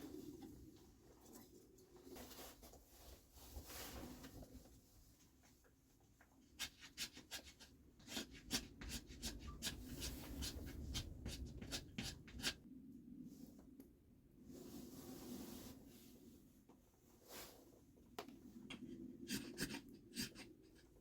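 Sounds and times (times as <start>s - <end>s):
scratchy scrapes and clicks: 18.7s - 21.0s.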